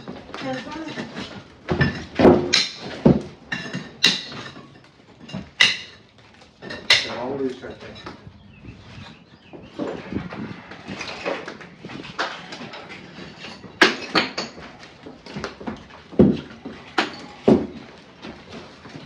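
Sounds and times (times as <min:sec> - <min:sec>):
bricks knocking and scraping: 0:09.8 - 0:19.0.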